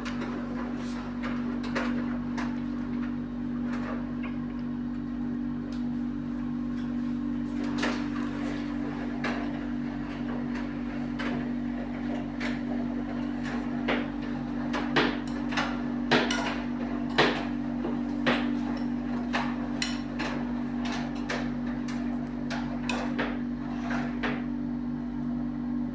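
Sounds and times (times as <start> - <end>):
washing machine motor hum: 0.0 - 25.9.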